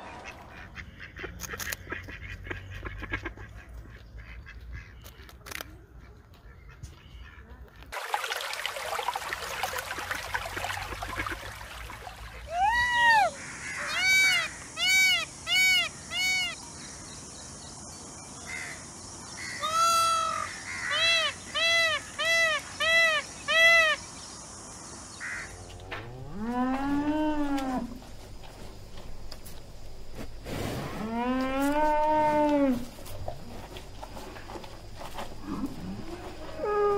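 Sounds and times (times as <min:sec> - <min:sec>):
peacock calling: 0:12.4 - 0:16.6, 0:19.4 - 0:24.0.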